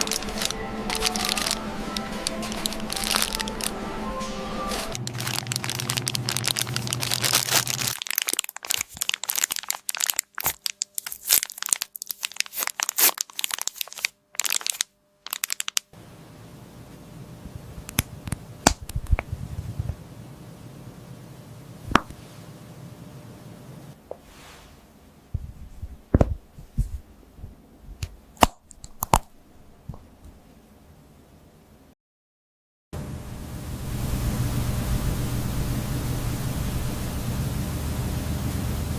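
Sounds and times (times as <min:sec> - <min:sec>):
crinkling and crackling: 0:00.0 - 0:15.9
sharp clicks and snaps: 0:15.3 - 0:15.9, 0:17.8 - 0:19.3
low hum: 0:16.0 - 0:24.0, 0:33.0 - 0:38.9.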